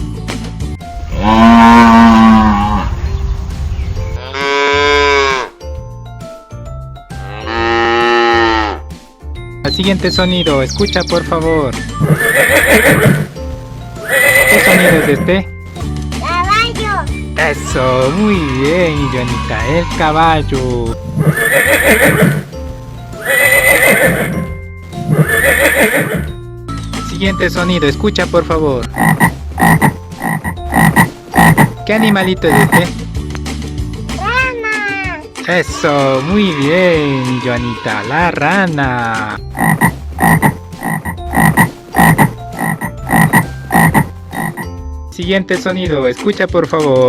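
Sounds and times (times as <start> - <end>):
background music: 0.0 - 47.0
cow mooing: 1.1 - 3.0, 4.2 - 5.6, 7.2 - 8.8, 14.0 - 15.2, 23.2 - 24.5
horse whinnying: 12.0 - 13.3, 14.0 - 15.2, 21.2 - 22.4, 23.2 - 24.5, 25.1 - 26.3.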